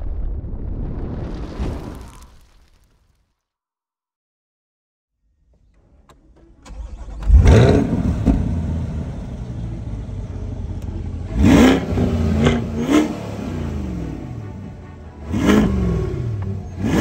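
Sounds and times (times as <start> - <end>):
car engine idling: 5.7 - 17.0
car engine starting and revving: 6.1 - 17.0.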